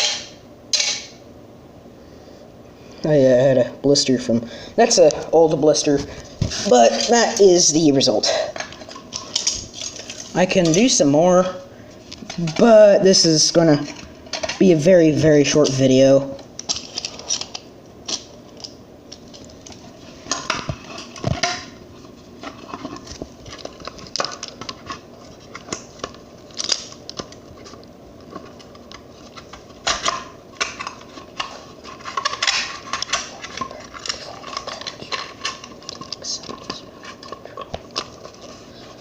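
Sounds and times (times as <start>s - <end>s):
hard objects clattering: 22.4s - 39.0s.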